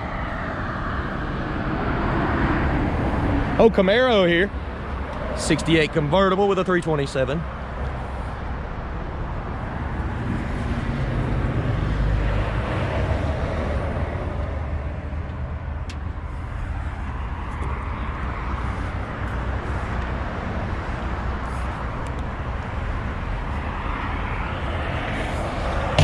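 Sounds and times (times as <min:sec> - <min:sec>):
vehicle passing by: 0:00.0 - 0:03.6, 0:09.4 - 0:26.0
road traffic rumble: 0:00.0 - 0:26.0.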